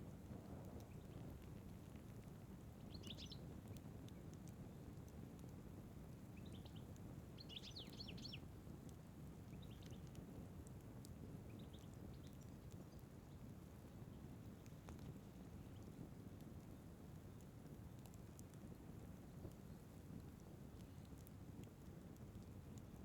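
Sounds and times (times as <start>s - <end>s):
small birds chirping: 2.8s - 3.8s, 6.3s - 8.6s, 9.4s - 10.2s, 11.4s - 16.1s.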